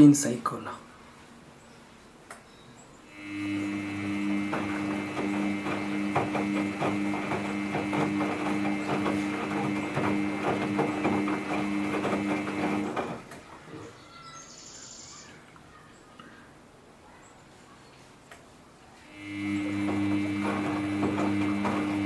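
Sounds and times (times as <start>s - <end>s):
washing machine motor humming: 3.1s - 13.8s, 19.0s - 22.0s
load tumbling with clicks and knocks: 3.5s - 14.0s, 19.3s - 22.0s.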